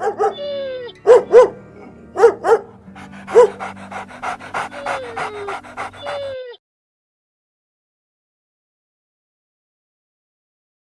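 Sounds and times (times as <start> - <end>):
background music: 0.0 - 6.5
breathy puffs: 2.7 - 6.4
animal calling: 3.0 - 6.6.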